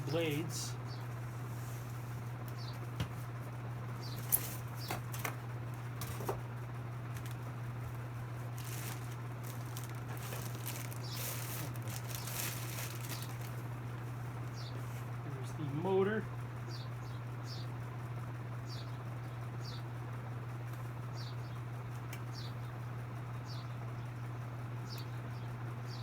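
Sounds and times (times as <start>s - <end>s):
steady low hum: 0.0s - 26.0s
packaging rustling: 7.1s - 14.0s.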